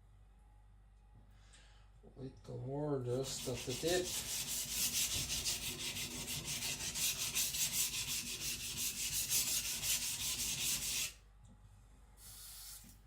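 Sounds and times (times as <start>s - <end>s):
knife rasping on a whetstone: 3.2s - 11.2s.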